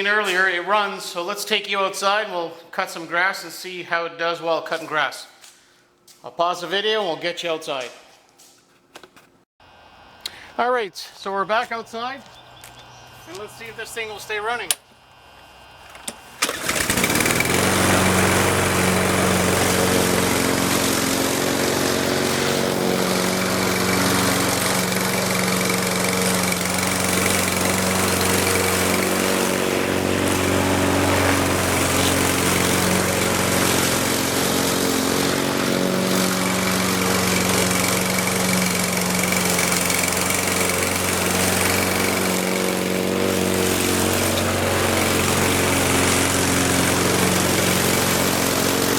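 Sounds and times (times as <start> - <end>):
lawn mower engine starting and running: 11.4 - 48.9.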